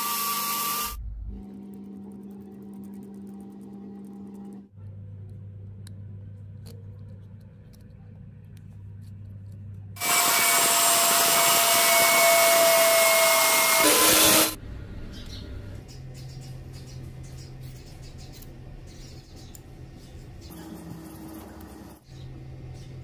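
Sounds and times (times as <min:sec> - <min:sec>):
power tool whining: 0:00.0 - 0:01.0, 0:10.0 - 0:14.6
low hum: 0:00.8 - 0:10.0.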